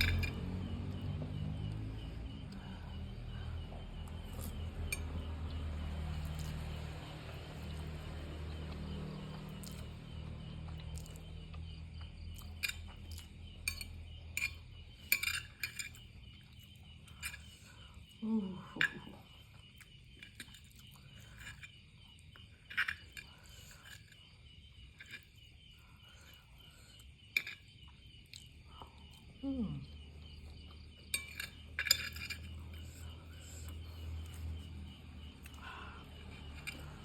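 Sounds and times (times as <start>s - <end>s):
cutlery clinking against bowl: 13.7s - 16.1s, 31.1s - 33.0s.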